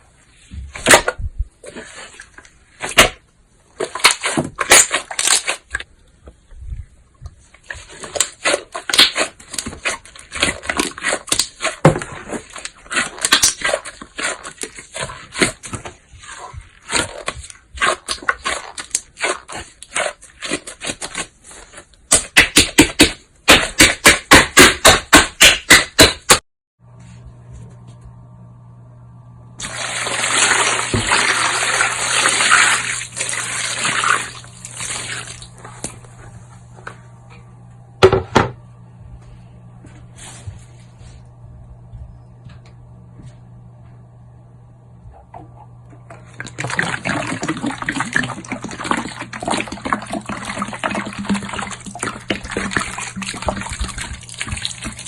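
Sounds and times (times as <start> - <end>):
faint steady hum: 26.9 - 55.0.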